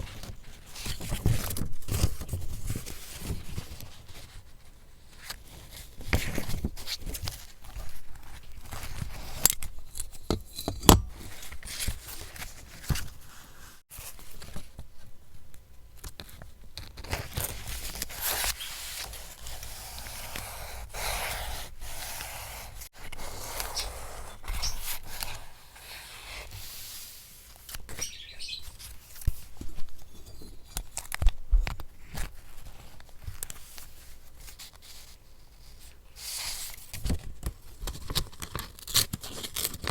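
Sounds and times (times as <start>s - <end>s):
paper rustling and tearing: 37.8s - 39.9s.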